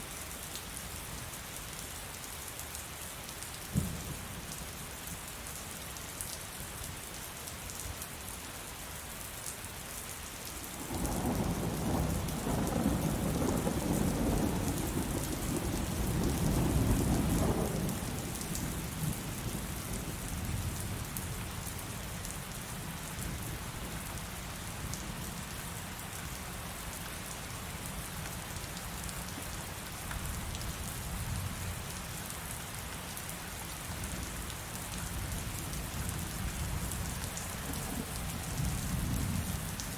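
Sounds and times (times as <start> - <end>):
heavy rain pattering: 10.2 - 39.9.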